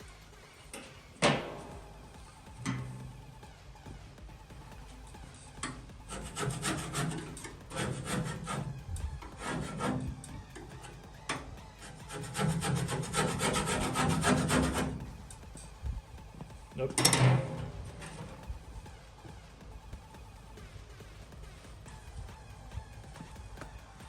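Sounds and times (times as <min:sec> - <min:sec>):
scraping tool on underseal: 0:00.7 - 0:03.4, 0:04.9 - 0:15.7, 0:16.8 - 0:18.5.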